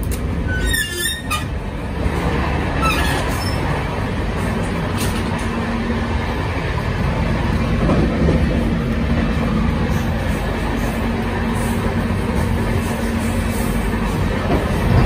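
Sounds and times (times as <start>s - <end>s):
train wheels rumbling on rail: 0.0s - 15.0s
short high squeaks: 0.5s - 1.5s.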